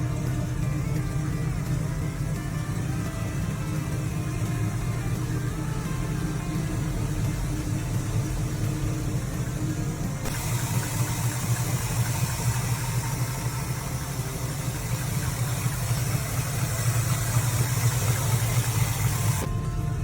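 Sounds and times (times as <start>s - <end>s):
car engine idling: 0.0s - 20.0s
hiss: 2.6s - 19.5s.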